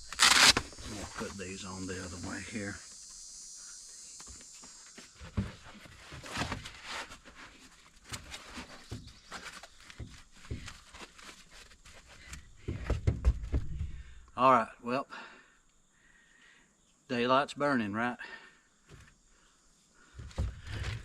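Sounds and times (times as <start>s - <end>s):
rustling and handling gear: 5.0s - 12.6s.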